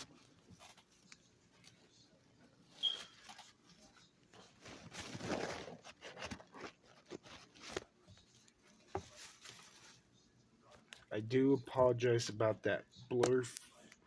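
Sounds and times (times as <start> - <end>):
rustling: 2.6 - 10.0.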